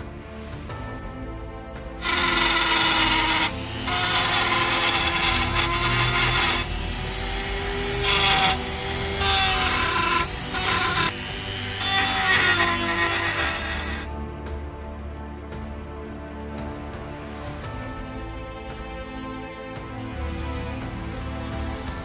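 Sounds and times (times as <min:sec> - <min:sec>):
background music: 0:00.0 - 0:22.0
power tool grinding steel: 0:02.0 - 0:14.1.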